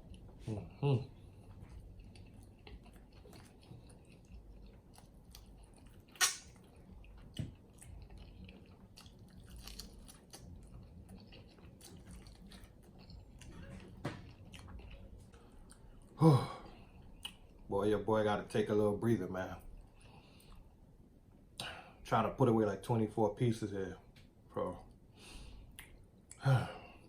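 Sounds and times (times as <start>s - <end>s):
person chewing food: 0.0s - 17.6s
wet smacks and clicks: 5.0s - 7.9s.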